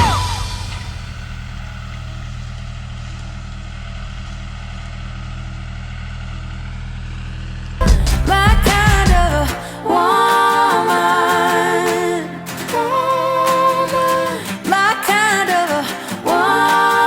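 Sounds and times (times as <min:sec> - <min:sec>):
engine running at low speed: 0:00.7 - 0:09.5.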